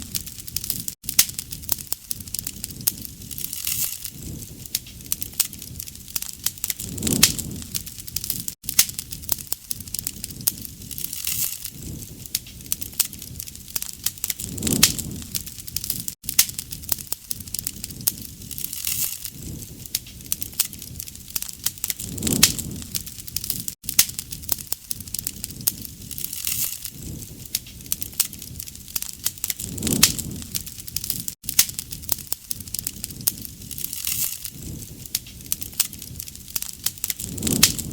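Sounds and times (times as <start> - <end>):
low rush of flame: 0.0 - 37.9
wood fire crackling and popping: 0.0 - 37.9.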